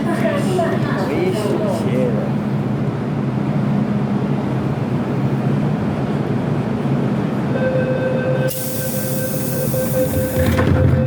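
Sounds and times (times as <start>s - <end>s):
metro train rumbling: 0.0s - 11.0s
loud hiss: 8.5s - 10.4s.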